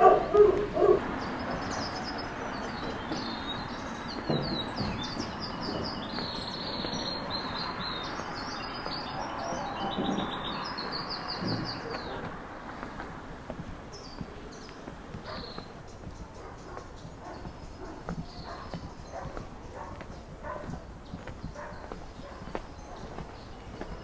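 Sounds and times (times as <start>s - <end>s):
dog barking: 0.0s - 1.1s, 15.2s - 15.6s, 16.3s - 23.2s
small birds chirping: 0.0s - 24.0s
steady background noise: 0.0s - 24.0s.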